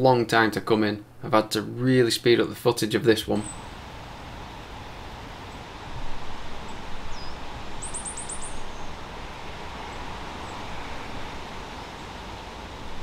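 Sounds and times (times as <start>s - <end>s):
woodland background hiss: 0.0s - 13.0s
small bird chirping: 3.4s - 3.7s, 6.6s - 9.0s.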